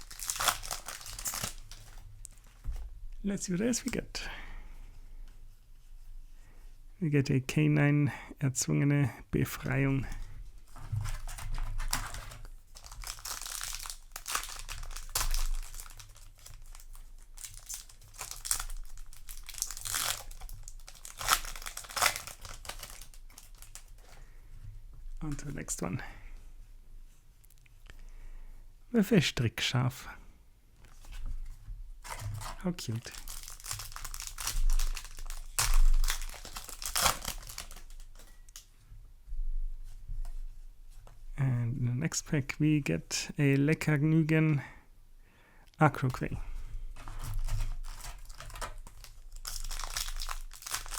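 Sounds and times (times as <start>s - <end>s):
foil wrapper crinkling and tearing: 0.0s - 2.4s, 10.6s - 24.1s, 32.0s - 38.7s, 46.9s - 50.9s.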